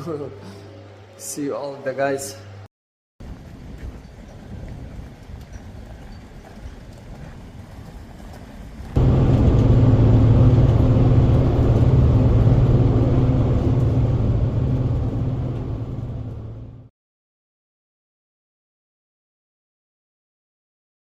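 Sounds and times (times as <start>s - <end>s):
engine drone: 9.0s - 16.9s.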